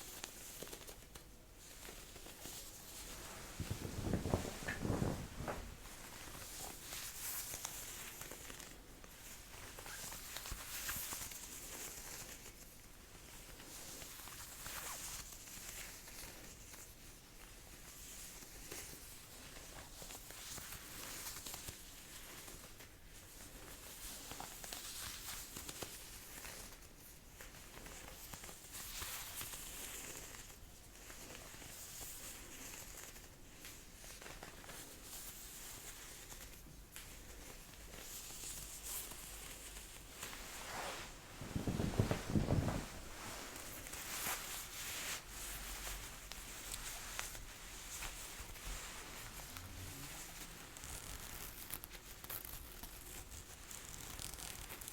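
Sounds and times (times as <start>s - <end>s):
jacket fabric rustling: 0.1s - 12.6s, 18.4s - 52.4s.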